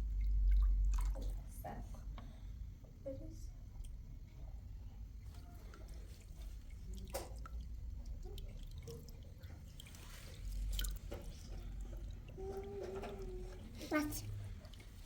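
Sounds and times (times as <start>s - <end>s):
water dripping: 0.0s - 1.6s, 5.4s - 15.0s.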